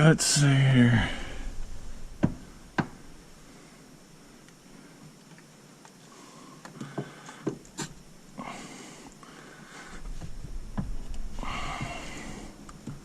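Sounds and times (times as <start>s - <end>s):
low rumble: 0.0s - 4.8s, 9.7s - 13.0s
breathy rustling: 1.0s - 5.1s, 6.1s - 13.0s.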